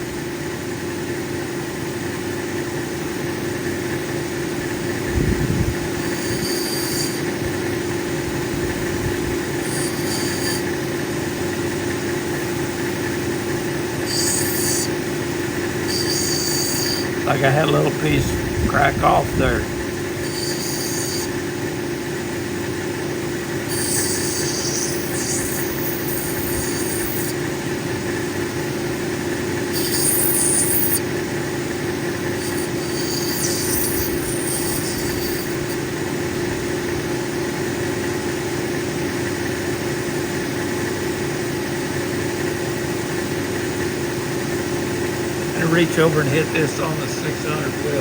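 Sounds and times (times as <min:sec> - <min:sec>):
grinding machine humming: 0:01.5 - 0:37.7, 0:43.2 - 0:48.0
stone grinding squeal: 0:06.0 - 0:07.5, 0:09.2 - 0:11.0, 0:14.0 - 0:18.3, 0:19.5 - 0:21.4, 0:23.6 - 0:27.4, 0:29.7 - 0:31.0, 0:32.2 - 0:35.8.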